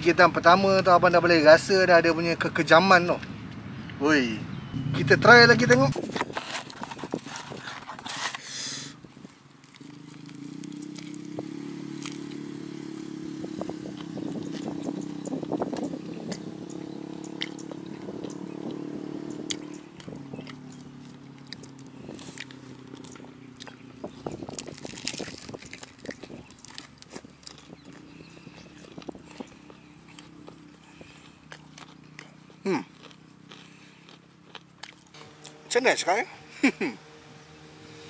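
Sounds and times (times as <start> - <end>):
crunching crispy fried chicken: 5.9 - 12.8, 19.5 - 35.6.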